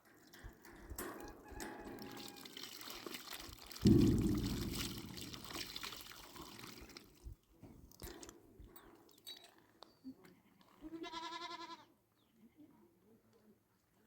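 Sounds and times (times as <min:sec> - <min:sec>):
liquid pouring: 0:01.6 - 0:07.3.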